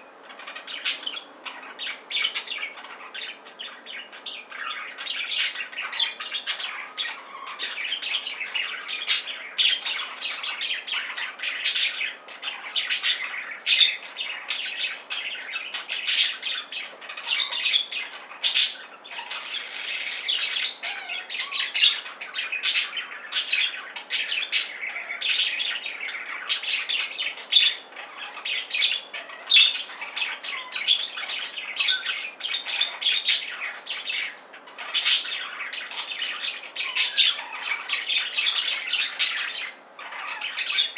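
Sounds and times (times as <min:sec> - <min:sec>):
budgerigars chattering: 0:00.0 - 0:40.9
sharp bird squawks: 0:18.5 - 0:21.3.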